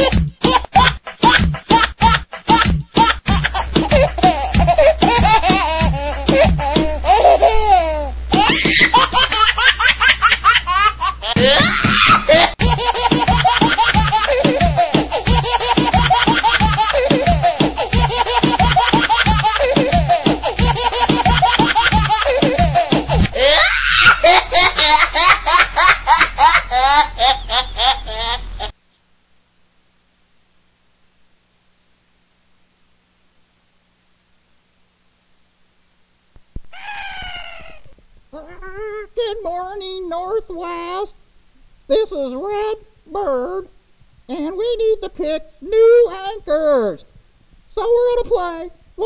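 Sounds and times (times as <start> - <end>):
young people laughing: 3.3 - 7.8, 11.2 - 28.7.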